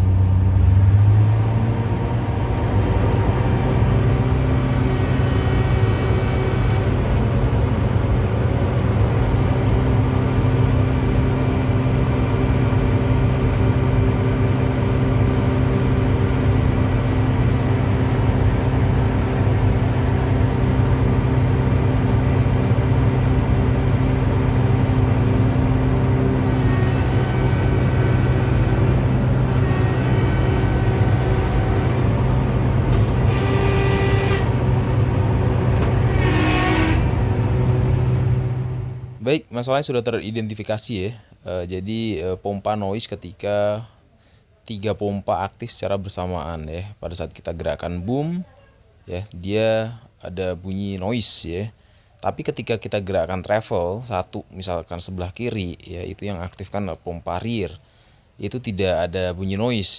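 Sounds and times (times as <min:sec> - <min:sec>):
excavator engine and hydraulic pumps: 0:00.0 - 0:39.4
steady tone: 0:02.3 - 0:39.3.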